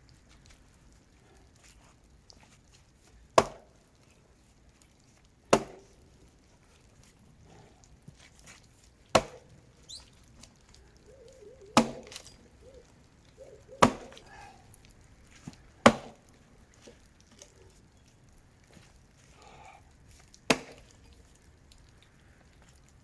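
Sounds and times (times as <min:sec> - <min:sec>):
axe chopping into tree trunk: 0:03.4 - 0:03.7, 0:05.5 - 0:05.9, 0:09.1 - 0:09.5, 0:11.8 - 0:12.3, 0:13.8 - 0:14.2, 0:15.8 - 0:16.3, 0:20.5 - 0:20.9.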